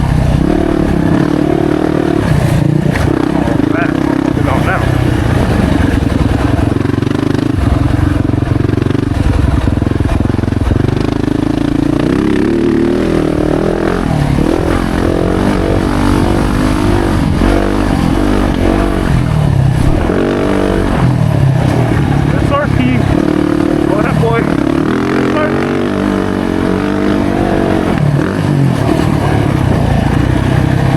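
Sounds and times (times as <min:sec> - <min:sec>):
motorcycle engine revving: 0:00.0 - 0:30.9.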